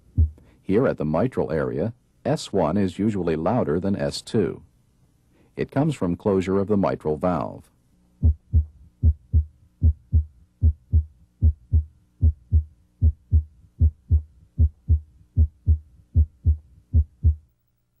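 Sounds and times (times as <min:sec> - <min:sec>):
heartbeat through stethoscope: 0:00.0 - 0:00.4, 0:08.2 - 0:17.5.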